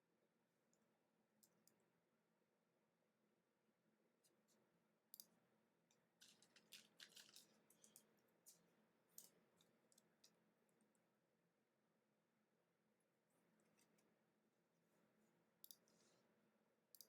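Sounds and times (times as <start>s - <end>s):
trading cards clicking and scraping: 6.2s - 8.6s.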